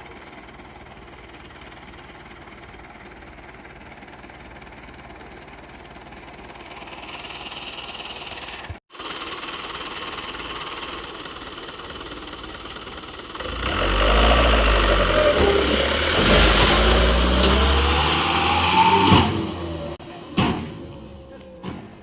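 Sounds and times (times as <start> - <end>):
truck diesel engine revving: 9.2 - 20.0.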